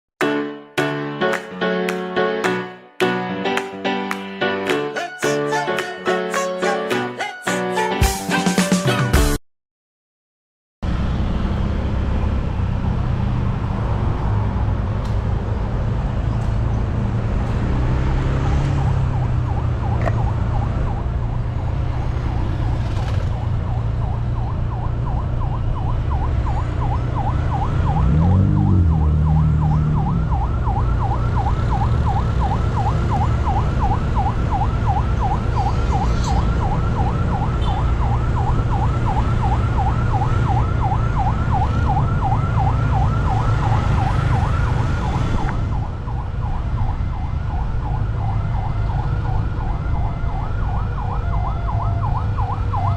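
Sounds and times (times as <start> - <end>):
idling road vehicles rumble: 10.8 - 52.9
level crossing alarm warbling: 24.4 - 45.2.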